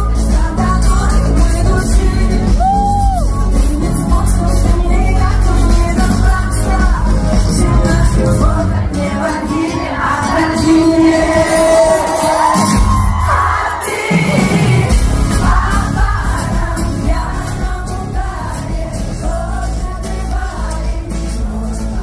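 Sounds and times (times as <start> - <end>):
heavy bass: 0.0 - 9.0, 14.6 - 22.0
live pop band playing: 0.0 - 22.0
person singing: 0.0 - 22.0.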